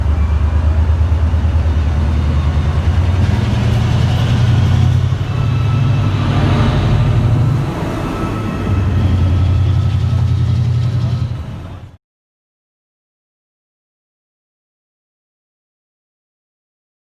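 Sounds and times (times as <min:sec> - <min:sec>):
diesel train engine running: 0:00.0 - 0:12.0.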